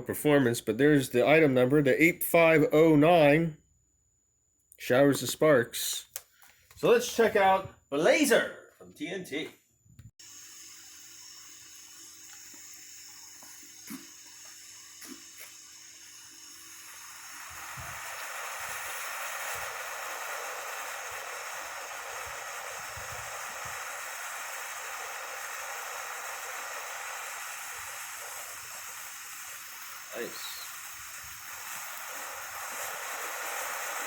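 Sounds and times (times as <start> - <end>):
firework sparks hissing: 10.2 - 34.0.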